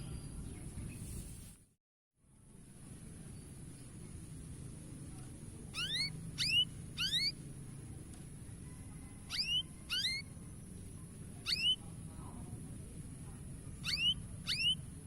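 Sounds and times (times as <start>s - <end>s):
canary chirping: 5.8s - 7.4s, 9.3s - 10.3s, 11.4s - 11.8s, 13.8s - 14.8s.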